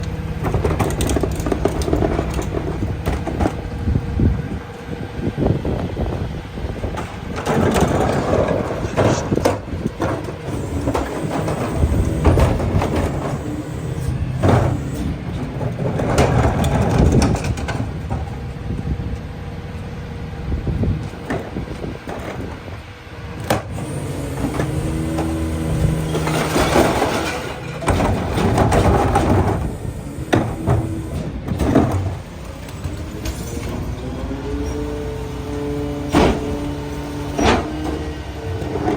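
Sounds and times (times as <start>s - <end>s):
garbage truck packer crushing: 0.0s - 4.6s, 5.4s - 18.9s, 20.8s - 38.9s
truck engine running: 0.0s - 38.9s
crunching and rattling: 23.6s - 33.8s.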